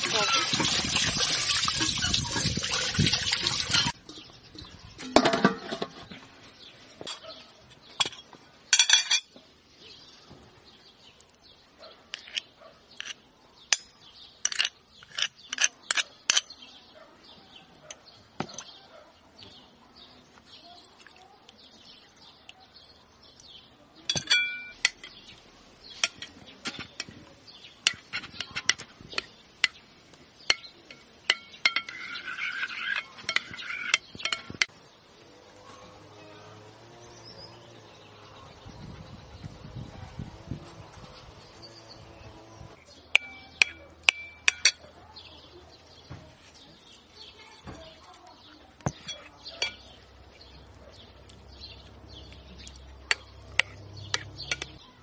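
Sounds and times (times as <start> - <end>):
water pouring: 0.0 - 4.2
kitchen utensils and dishes clinking: 0.0 - 4.3, 5.0 - 6.2, 8.0 - 9.4, 24.1 - 25.2, 26.0 - 27.2, 30.5 - 34.7, 43.1 - 44.9, 48.8 - 50.0, 53.1 - 54.8.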